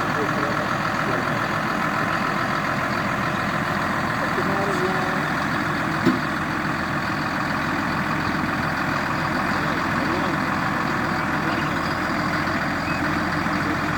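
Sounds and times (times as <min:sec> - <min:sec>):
diesel engine running: 0:00.0 - 0:13.9
sharp knock: 0:06.0 - 0:06.2.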